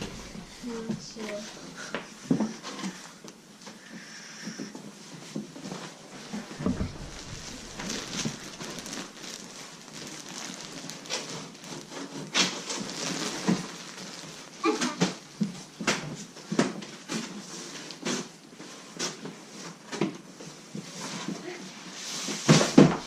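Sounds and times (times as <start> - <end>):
heavy thump: 0.0 - 2.0, 6.6 - 9.5
cardboard rustling and scraping: 0.0 - 3.0, 5.6 - 15.6, 22.1 - 23.0.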